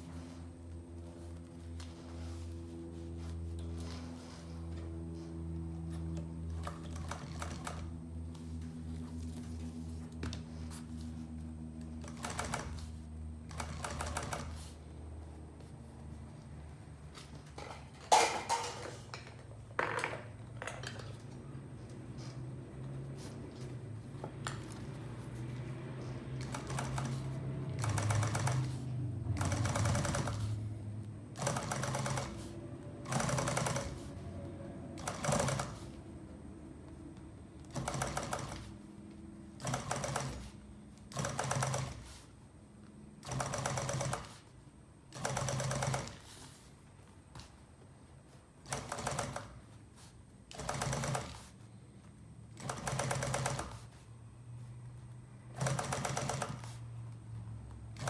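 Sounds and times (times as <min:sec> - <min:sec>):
sewing machine stitching: 0:06.5 - 0:08.0, 0:12.0 - 0:14.8, 0:24.5 - 0:30.7, 0:31.3 - 0:34.4, 0:35.0 - 0:36.1, 0:37.6 - 0:38.8, 0:39.5 - 0:42.3, 0:43.2 - 0:44.5, 0:45.1 - 0:46.7, 0:48.6 - 0:49.8, 0:50.5 - 0:51.6, 0:52.5 - 0:54.0, 0:55.5 - 0:56.9
sewing machine motor humming: 0:11.8 - 0:14.8, 0:24.6 - 0:30.7, 0:31.4 - 0:34.3, 0:35.0 - 0:36.0, 0:37.6 - 0:38.8, 0:39.5 - 0:42.2, 0:43.2 - 0:44.5, 0:45.2 - 0:46.4, 0:50.5 - 0:51.6, 0:52.5 - 0:54.0, 0:55.5 - 0:56.8.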